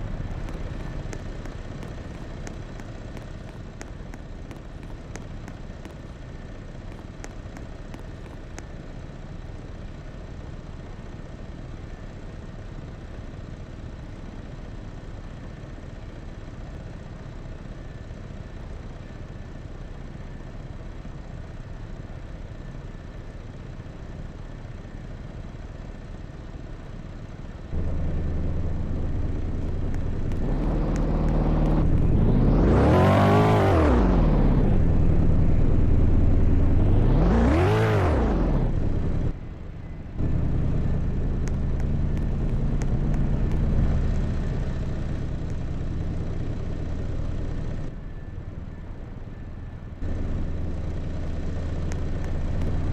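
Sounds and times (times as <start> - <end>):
motor vehicle engine revving: 0.0 - 6.1, 27.7 - 39.4, 40.2 - 47.9
vehicle rumble: 0.0 - 52.9.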